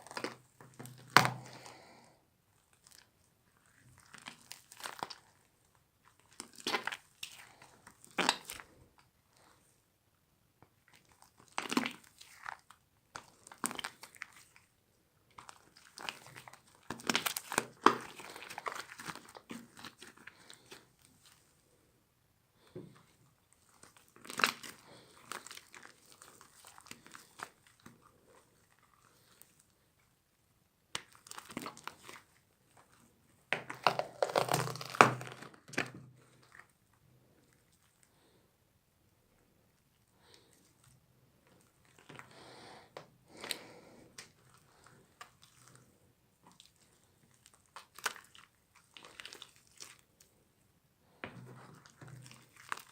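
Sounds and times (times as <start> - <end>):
crunchy slime crackling and popping: 0.0 - 9.1, 10.8 - 21.4, 22.6 - 29.7, 30.9 - 36.8, 43.3 - 50.4, 51.5 - 52.9.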